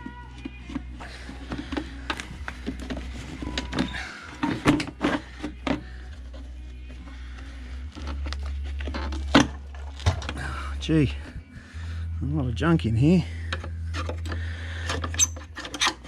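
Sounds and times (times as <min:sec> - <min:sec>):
clicks and scrapes of handling: 0:00.0 - 0:10.4, 0:13.5 - 0:16.0
steady low hum: 0:00.2 - 0:16.0.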